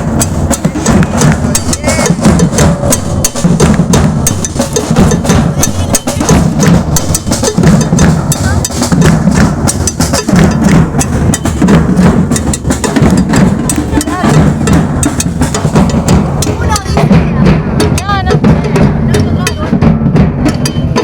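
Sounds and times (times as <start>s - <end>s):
crowd voices: 0.0s - 9.0s, 12.4s - 19.8s
drums and percussion playing: 0.0s - 21.0s.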